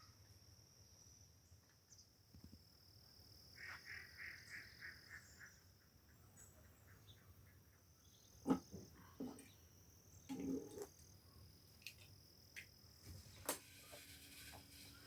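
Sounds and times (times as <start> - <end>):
insect trill: 9.4 - 15.0.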